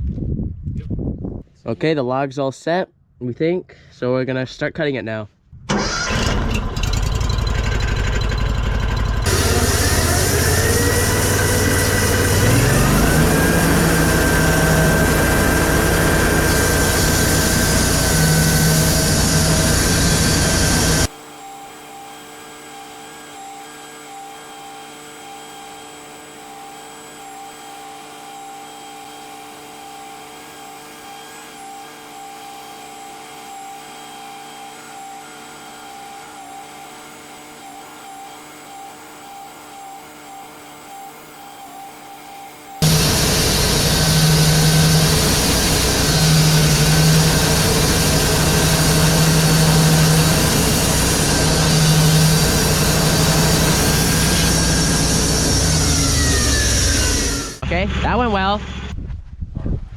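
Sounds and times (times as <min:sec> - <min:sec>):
sawmill engine running under load: 0:05.7 - 0:21.1, 0:42.8 - 0:58.9.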